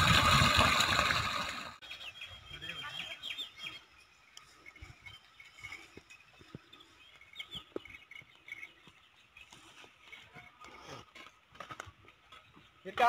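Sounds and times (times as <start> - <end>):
small birds chirping: 1.8 - 13.0.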